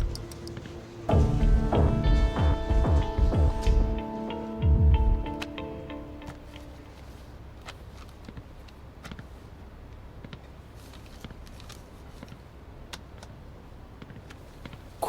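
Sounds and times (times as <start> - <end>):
faint footsteps: 0.0 - 9.4
low steady hum: 0.0 - 15.0.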